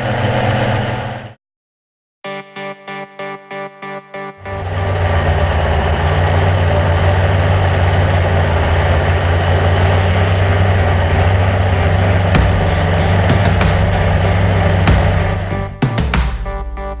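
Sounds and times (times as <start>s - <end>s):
drone motors humming: 4.5s - 15.9s.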